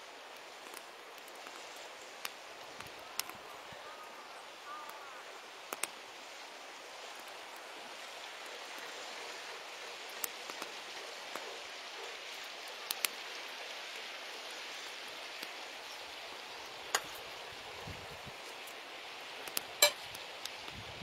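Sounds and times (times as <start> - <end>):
wood fire hissing: 0.0 - 21.0
wood crackling pops: 0.4 - 1.6, 2.2 - 3.5, 5.7 - 6.0, 16.7 - 17.4, 19.4 - 20.7.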